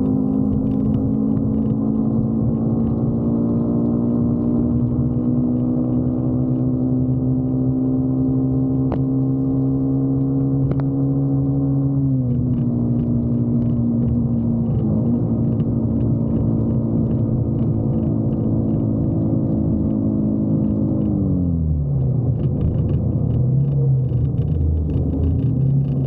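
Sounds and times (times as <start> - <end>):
motorcycle engine running: 0.0 - 7.8, 22.2 - 26.0.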